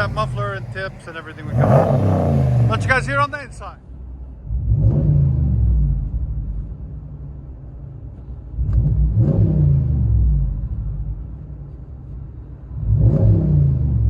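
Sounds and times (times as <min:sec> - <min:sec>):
truck engine revving: 0:00.0 - 0:03.7.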